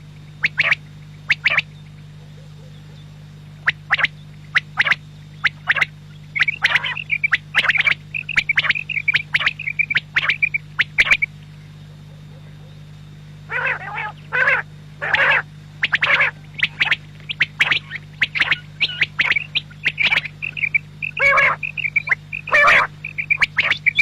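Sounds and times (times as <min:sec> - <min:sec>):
low hum: 0:00.0 - 0:24.0
quail calling: 0:00.3 - 0:24.0
quick chirping notes: 0:03.6 - 0:11.3, 0:13.5 - 0:24.0.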